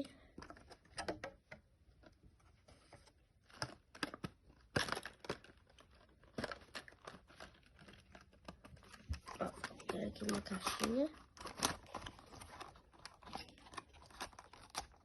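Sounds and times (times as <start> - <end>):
packaging crinkling: 3.1 - 15.0.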